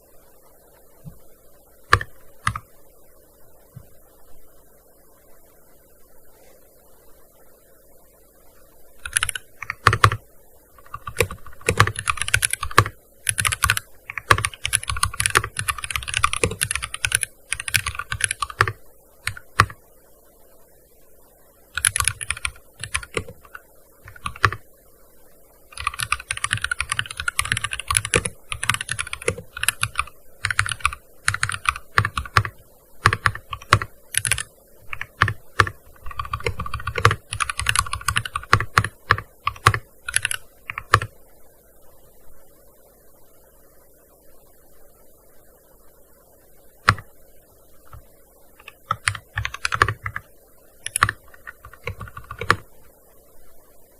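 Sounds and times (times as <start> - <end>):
keyboard typing: 1.9 - 2.7, 9.0 - 10.2, 10.8 - 19.8, 21.8 - 24.6, 25.7 - 41.1, 46.8 - 47.1, 47.9 - 52.7.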